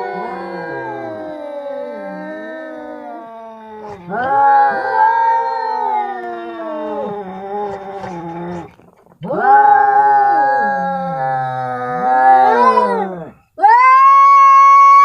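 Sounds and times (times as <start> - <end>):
cats yowling: 0.0 - 15.0
lower cat voice sliding: 6.1 - 8.8.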